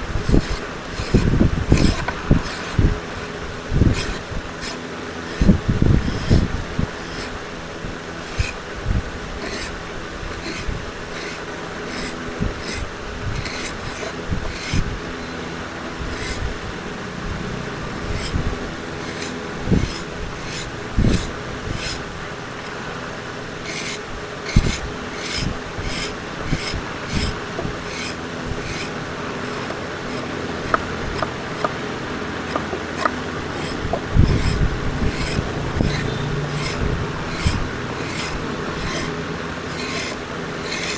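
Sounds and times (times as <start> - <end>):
rasp scraping wood: 0.0 - 15.2, 15.9 - 22.8, 23.4 - 40.9
steady low hum: 0.0 - 40.9.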